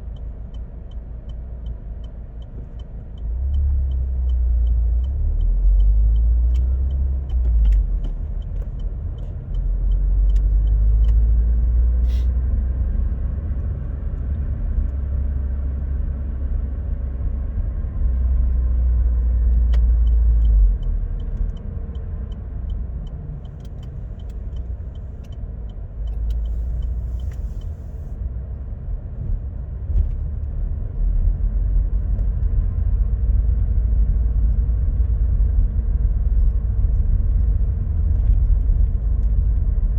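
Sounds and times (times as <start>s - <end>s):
light regular ticking: 0.0s - 11.8s, 18.1s - 28.0s
road rumble inside car: 0.0s - 39.9s.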